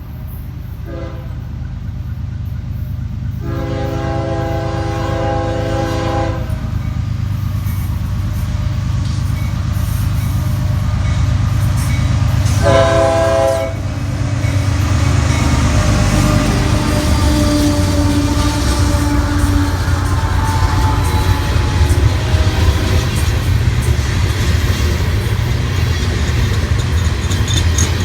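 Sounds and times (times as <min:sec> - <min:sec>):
low rumble of train: 0:00.0 - 0:28.0
locomotive horn blasts: 0:00.8 - 0:01.5, 0:03.4 - 0:06.8, 0:12.4 - 0:23.8.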